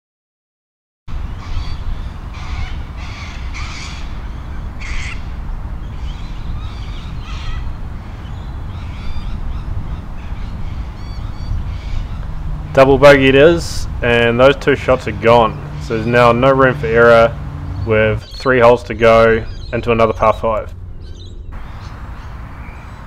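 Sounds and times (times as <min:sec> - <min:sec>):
harsh bird calls: 0:01.1 - 0:23.0
steady low rumble: 0:01.1 - 0:23.0
light bird chirps: 0:14.7 - 0:23.0.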